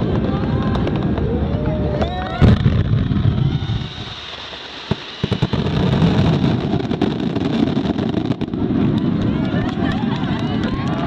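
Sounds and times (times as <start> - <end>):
low rumble: 0.0 - 4.6
fireworks bang: 0.0 - 10.8
fireworks crackling and popping: 0.0 - 11.0.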